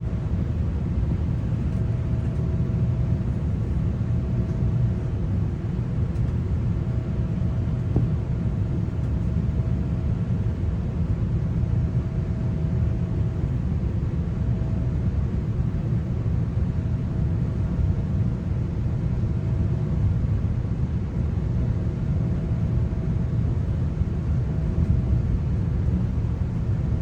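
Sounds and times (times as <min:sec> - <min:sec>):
faint steady hum: 0:00.0 - 0:27.0
train rumble inside coach: 0:00.0 - 0:27.0
click: 0:06.1 - 0:06.4.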